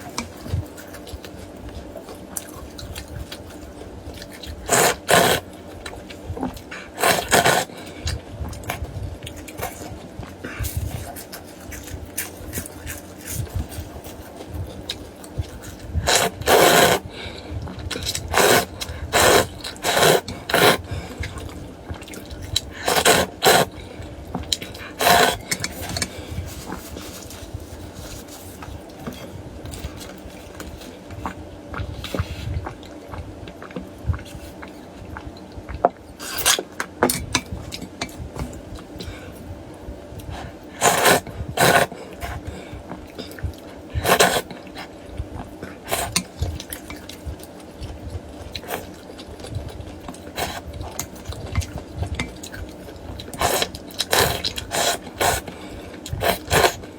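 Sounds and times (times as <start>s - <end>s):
soft chewing: 0.0s - 56.9s
slurping noodles and broth: 4.6s - 5.6s, 6.8s - 8.9s, 15.7s - 17.2s, 17.9s - 21.5s, 22.2s - 23.9s, 24.7s - 28.7s, 40.2s - 42.6s, 43.3s - 44.9s, 45.8s - 46.6s, 50.3s - 51.4s, 53.2s - 56.9s.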